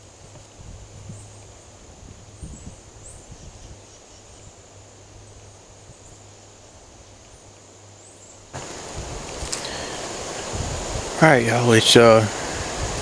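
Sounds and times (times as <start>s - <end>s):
wind rumble on microphone: 0.0s - 6.2s, 8.6s - 11.2s, 12.0s - 13.0s.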